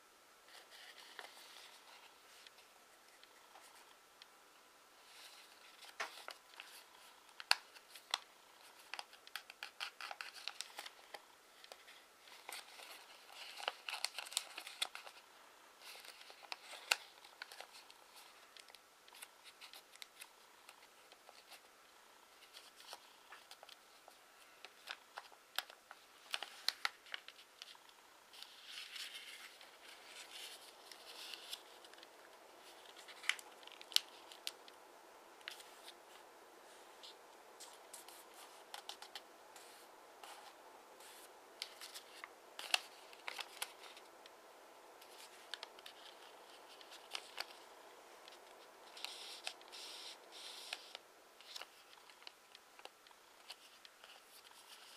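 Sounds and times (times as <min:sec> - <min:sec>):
paper crinkling and rustling: 0:00.5 - 0:04.0, 0:05.0 - 0:15.2, 0:15.8 - 0:21.7, 0:22.3 - 0:34.8, 0:35.4 - 0:54.9
paper creasing clicks: 0:48.2 - 0:54.9.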